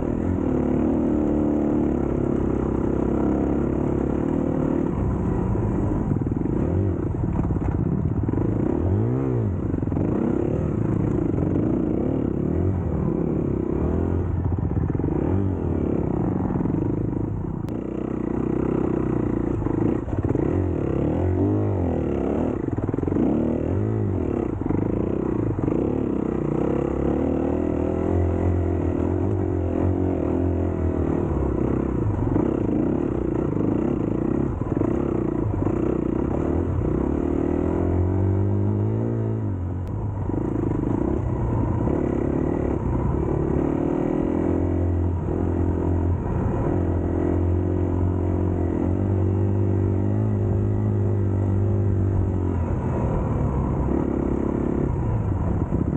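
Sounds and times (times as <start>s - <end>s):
dirt bike engine revving: 17.7s - 39.6s, 40.3s - 55.0s.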